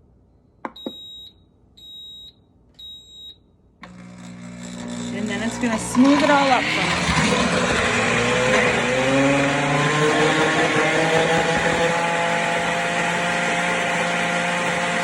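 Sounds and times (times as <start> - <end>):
blender motor whine: 3.8 - 15.0.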